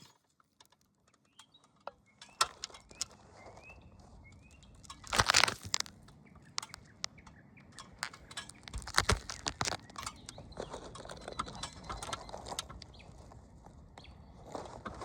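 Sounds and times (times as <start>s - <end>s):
small birds chirping: 1.3s - 14.4s
sharp clicks: 6.5s - 7.2s, 7.8s - 10.4s.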